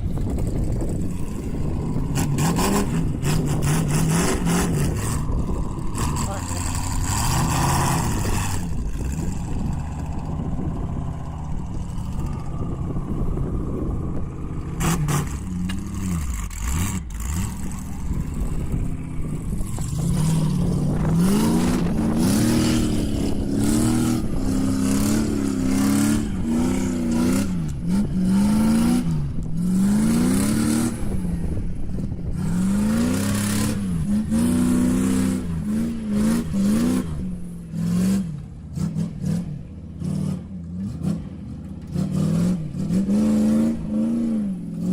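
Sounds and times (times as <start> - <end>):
vehicle engine revving: 0.0 - 44.9.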